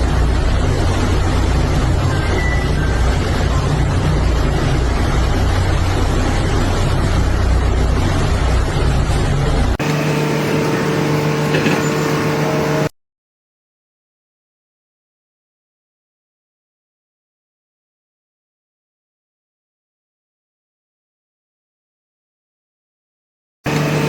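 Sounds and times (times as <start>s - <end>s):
heavy machinery engine rumble: 0.0s - 12.9s.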